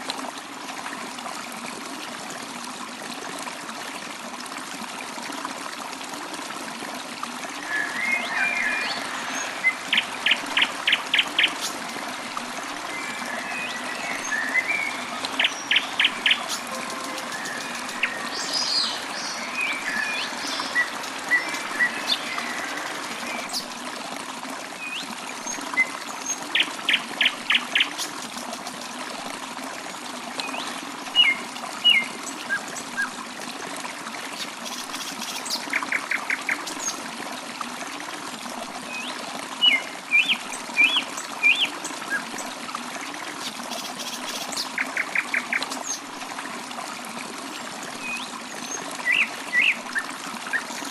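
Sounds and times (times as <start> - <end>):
stream trickling: 0.0 - 50.9
songbirds calling: 7.6 - 23.7, 48.0 - 50.9.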